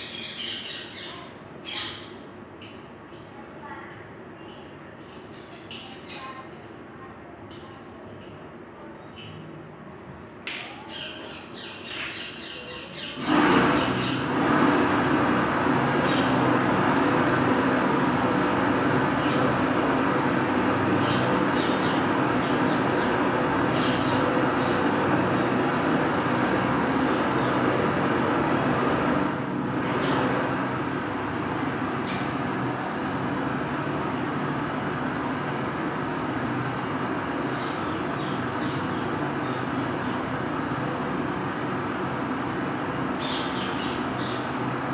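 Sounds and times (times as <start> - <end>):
machine running with low hum: 13.2 - 44.9.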